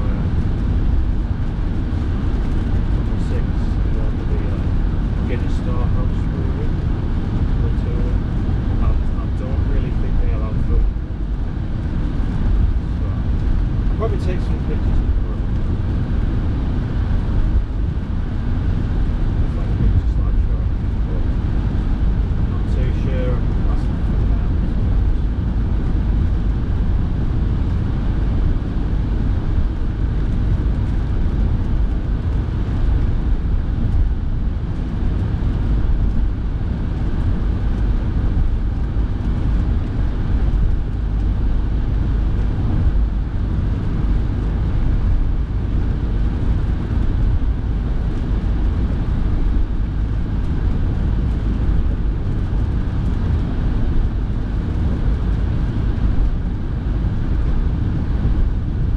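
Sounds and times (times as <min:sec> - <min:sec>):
car rumble from inside cabin: 0:00.0 - 0:58.9
heater fan blowing: 0:00.0 - 0:58.9.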